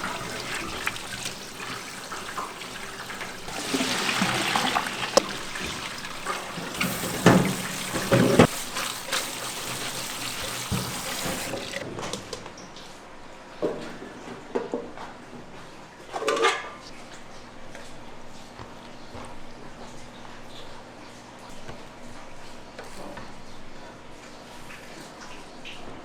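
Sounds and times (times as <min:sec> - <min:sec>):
kitchenware knocking and clattering: 0:00.0 - 0:08.6
water trickling: 0:00.0 - 0:11.8.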